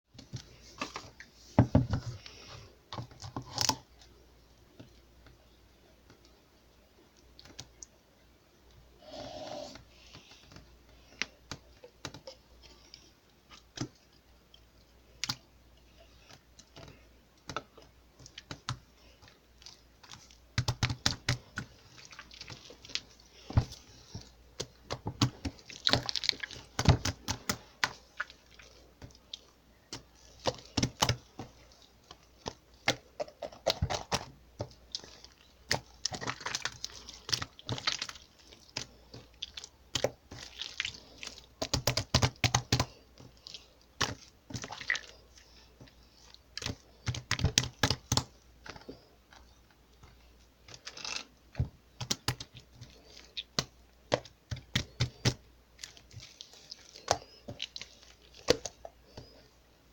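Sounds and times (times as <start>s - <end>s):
slime clicking and crackling: 15.1s - 59.4s.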